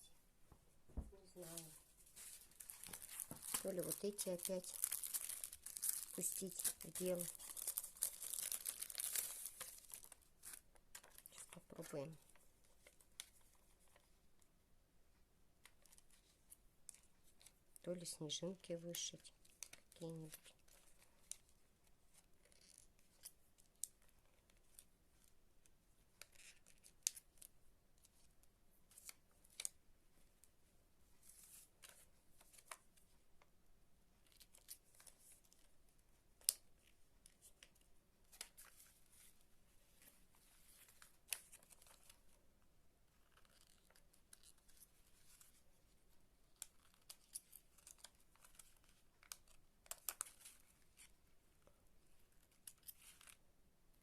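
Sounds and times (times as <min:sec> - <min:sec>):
craft materials rustling: 0:00.9 - 0:11.6.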